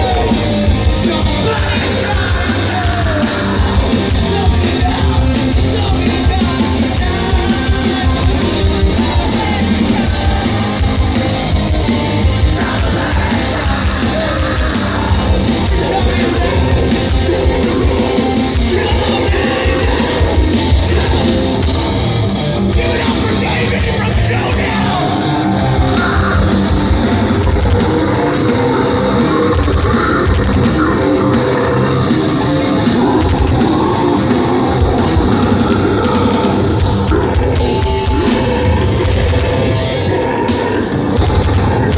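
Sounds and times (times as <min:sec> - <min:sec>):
bass guitar: 0:00.0 - 0:41.9
distorted guitars: 0:00.0 - 0:41.9
pounding drums: 0:00.0 - 0:41.9
shouted and sung vocals: 0:00.0 - 0:41.9.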